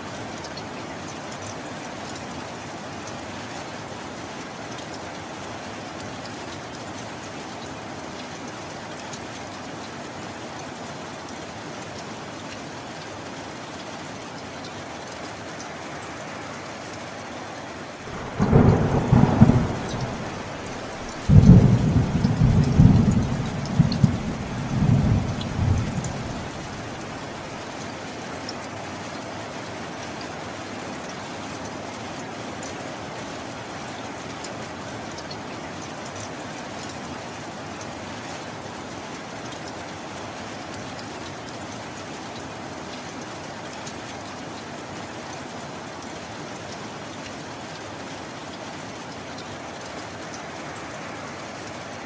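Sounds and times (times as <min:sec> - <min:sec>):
steady rain: 0:00.0 - 0:52.0
thunder clap and rumble: 0:18.1 - 0:27.2.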